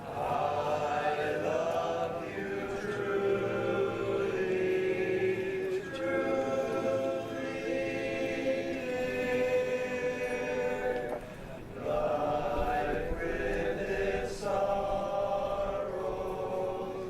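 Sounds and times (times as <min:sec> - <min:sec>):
barbershop chorus singing a cappella: 0:00.0 - 0:17.0.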